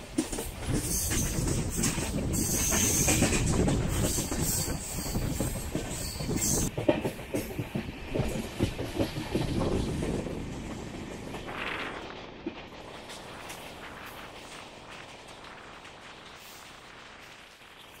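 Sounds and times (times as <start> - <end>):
train rumbling on track: 0.0 - 18.0.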